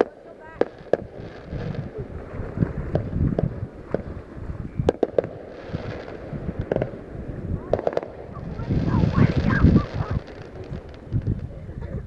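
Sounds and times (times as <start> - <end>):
fireworks bangs and cracks: 0.0 - 11.6
low rumble: 0.7 - 12.0.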